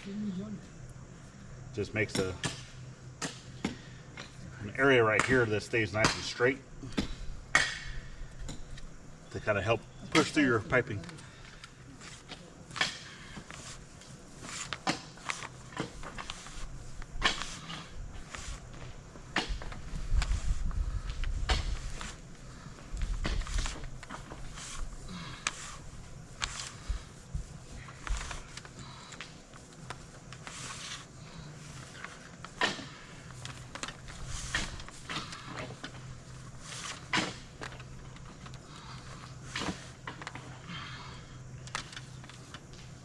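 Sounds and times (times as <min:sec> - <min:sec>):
steady low hum: 0:00.0 - 0:43.0
wire handling clicks and rustles: 0:02.0 - 0:43.0.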